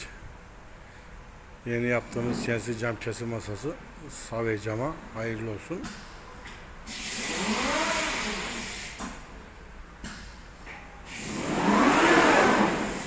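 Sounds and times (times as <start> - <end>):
drive motors whining: 11.2 - 13.0.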